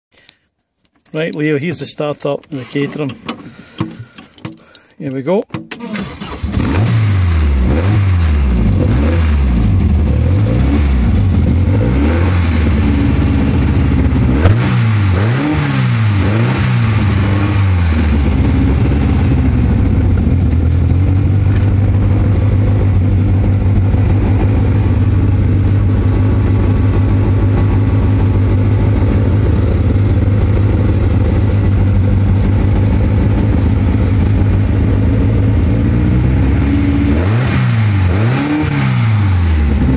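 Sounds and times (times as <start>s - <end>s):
exhaust crack: 5.5s - 39.9s
car engine revving and idling: 6.0s - 39.9s.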